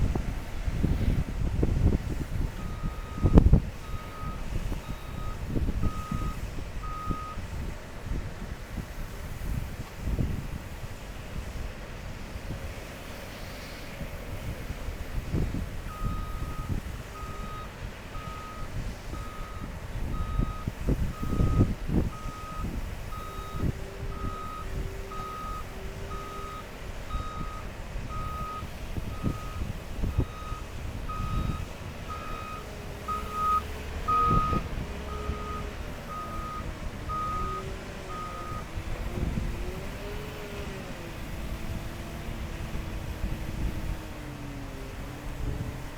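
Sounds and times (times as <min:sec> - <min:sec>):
low diesel engine rumble: 0:00.0 - 0:45.9
reversing alarm beeping: 0:02.6 - 0:07.4, 0:15.9 - 0:38.7.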